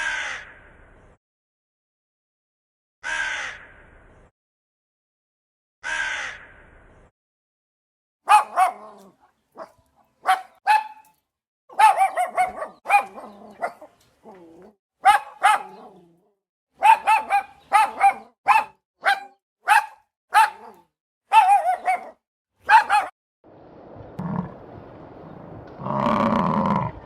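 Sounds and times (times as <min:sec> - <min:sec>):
dog barking high-pitched yaps: 0:08.3 - 0:13.9, 0:15.0 - 0:15.9, 0:16.8 - 0:23.2.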